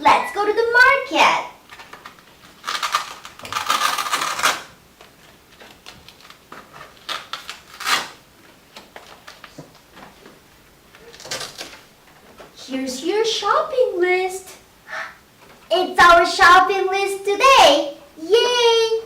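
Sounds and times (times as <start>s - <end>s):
rustling: 1.6s - 12.6s.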